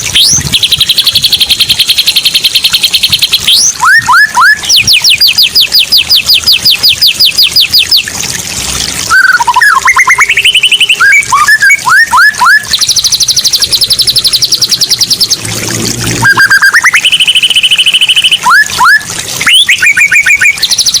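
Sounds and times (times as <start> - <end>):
myna rising whistles: 9.1 - 12.6, 16.2 - 20.6.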